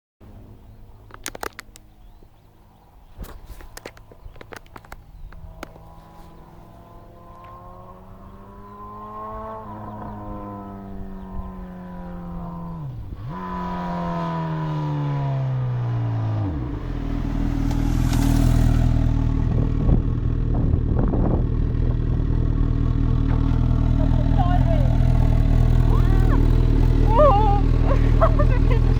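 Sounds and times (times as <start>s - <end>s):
motorcycle engine revving: 4.8s - 28.9s.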